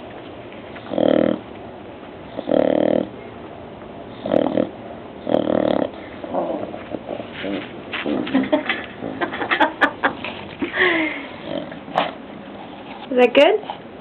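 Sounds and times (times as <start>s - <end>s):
dog snoring: 0.8s - 1.4s, 2.3s - 3.2s, 4.1s - 8.3s, 11.4s - 12.1s.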